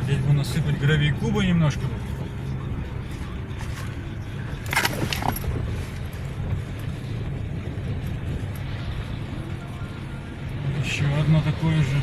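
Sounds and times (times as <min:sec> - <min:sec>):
car rumbling on dirt road: 0:00.0 - 0:12.0.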